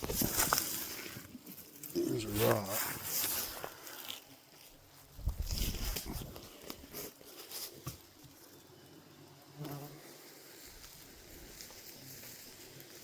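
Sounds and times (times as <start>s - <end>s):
flying insect buzzing: 7.8s - 13.0s.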